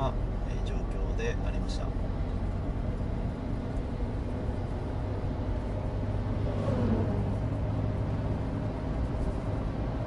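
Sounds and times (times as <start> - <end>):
car engine drone: 0.0 - 10.0
tyre and road rumble: 0.0 - 10.0.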